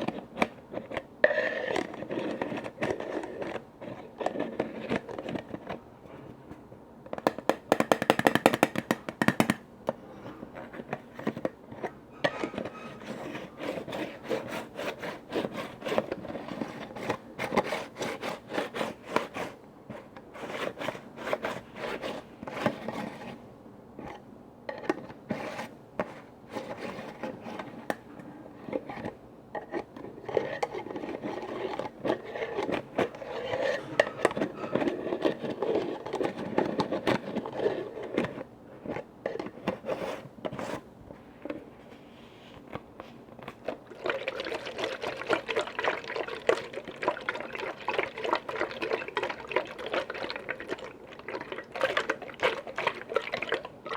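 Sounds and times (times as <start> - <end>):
tapping and scraping on lids: 7.2 - 10.0.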